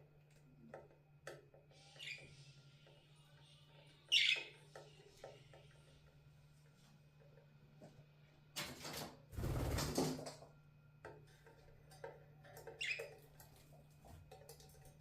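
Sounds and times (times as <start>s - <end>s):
birds rustling in bath: 8.6s - 10.4s, 12.4s - 15.0s.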